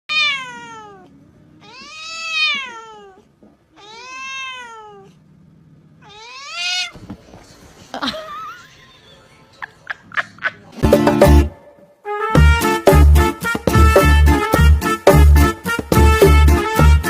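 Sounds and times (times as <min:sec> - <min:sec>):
cat meowing: 0:00.1 - 0:05.2, 0:06.0 - 0:07.0.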